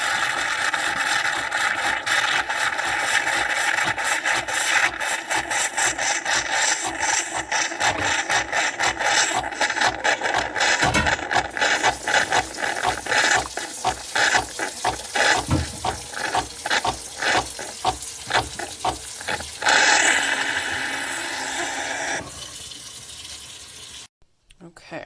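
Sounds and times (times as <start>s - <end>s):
espresso machine pump pulsing: 0.0s - 22.8s
espresso machine steady hiss: 11.8s - 22.3s.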